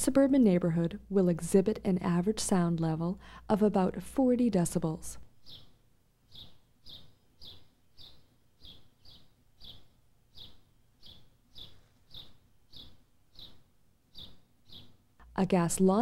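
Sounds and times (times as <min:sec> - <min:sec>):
bird chirping: 0:05.2 - 0:15.0.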